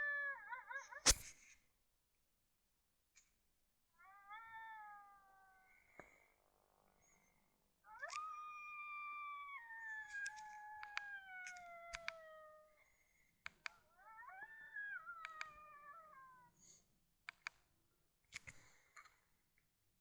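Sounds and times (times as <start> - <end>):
sharp clicks: 1.1 - 1.3
coyote howling: 13.9 - 16.5.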